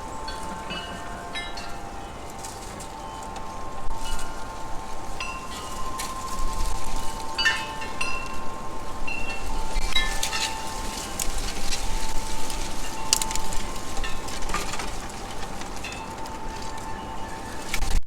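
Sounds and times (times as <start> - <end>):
sharp clicks and crackles: 9.2 - 18.0.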